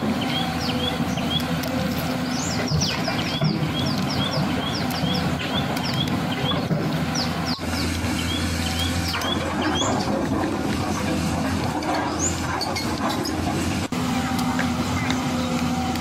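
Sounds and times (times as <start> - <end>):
bird chirping: 0.2 - 1.6, 2.2 - 10.0.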